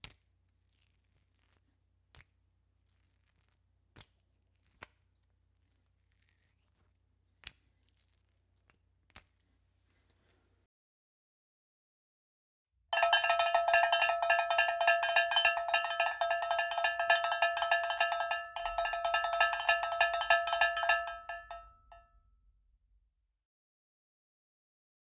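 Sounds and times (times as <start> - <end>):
metal object clanging: 13.0 - 22.0.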